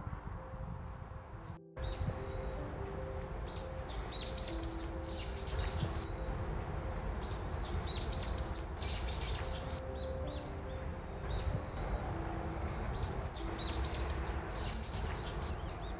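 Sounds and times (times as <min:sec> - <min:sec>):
songbirds chirping: 0:01.4 - 0:15.9
thin whistled bird notes: 0:03.5 - 0:12.2, 0:12.8 - 0:15.9.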